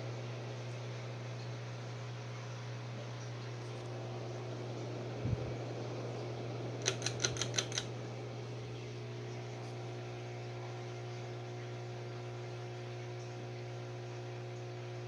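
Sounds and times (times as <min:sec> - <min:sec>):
ceiling fan motor humming: 0:00.0 - 0:15.0
quick clicks: 0:06.8 - 0:07.9.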